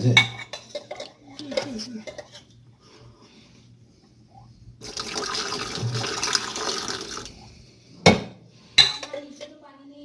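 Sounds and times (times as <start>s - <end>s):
water pouring and splashing: 4.8s - 7.4s.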